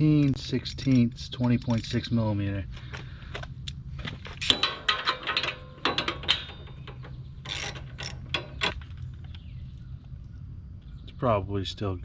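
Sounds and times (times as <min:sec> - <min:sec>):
ratchet wrench clicking: 0:00.0 - 0:02.2, 0:07.4 - 0:08.6.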